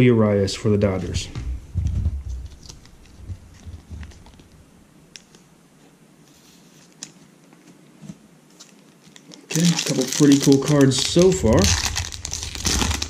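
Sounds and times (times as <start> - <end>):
trading cards being flipped: 2.3 - 4.6.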